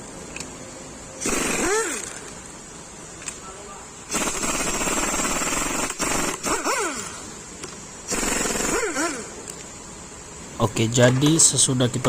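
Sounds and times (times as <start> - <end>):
impact wrench hammering and whirring: 1.2 - 2.4, 4.1 - 7.2, 8.1 - 9.4.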